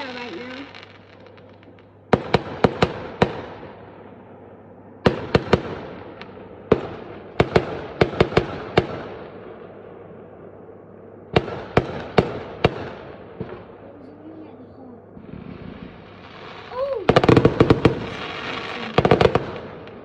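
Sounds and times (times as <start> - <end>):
fireworks bangs with echo: 0.0 - 14.2, 15.2 - 20.0.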